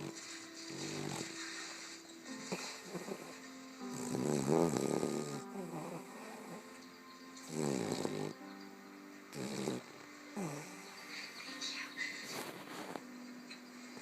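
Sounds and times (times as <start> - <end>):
dog snoring: 0.0 - 6.8, 7.4 - 8.5, 9.3 - 10.9
background music: 0.0 - 14.0.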